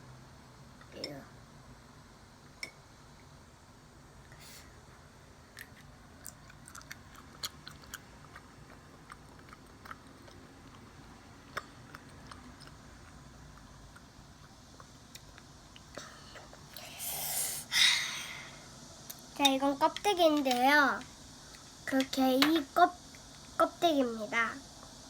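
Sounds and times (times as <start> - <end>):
soft chewing: 5.6 - 16.8.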